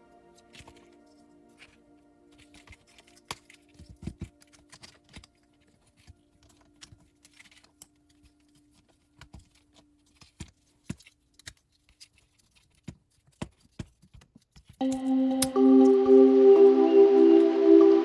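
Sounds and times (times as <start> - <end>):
plastic parts clicking and tapping: 2.7 - 14.8.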